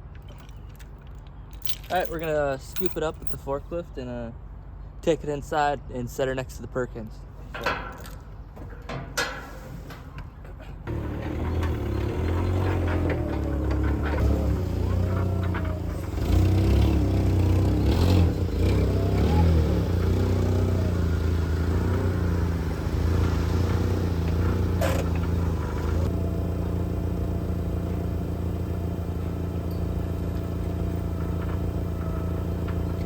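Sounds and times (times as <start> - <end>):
clattering and scraping: 0.0 - 3.5, 7.4 - 19.4, 21.7 - 26.1, 29.8 - 33.0
forklift engine running: 10.9 - 33.0.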